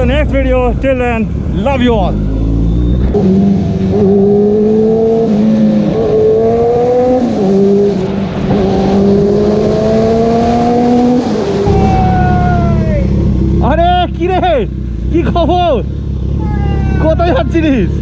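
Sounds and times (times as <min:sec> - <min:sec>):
motorcycle engine accelerating: 0:02.2 - 0:16.4.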